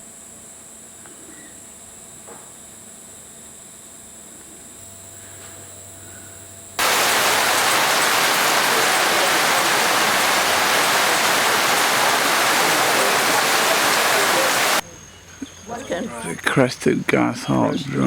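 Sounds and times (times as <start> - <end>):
loud steady hiss: 6.8 - 14.8
insects droning: 6.8 - 17.7.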